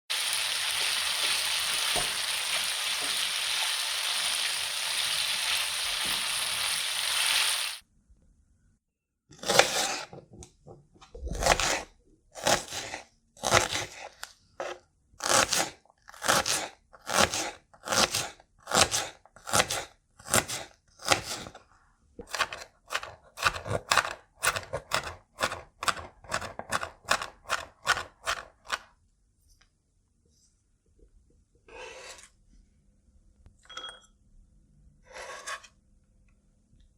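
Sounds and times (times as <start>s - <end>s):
knife cutting crisp vegetable: 9.4s - 10.1s, 11.2s - 21.6s, 22.2s - 28.9s.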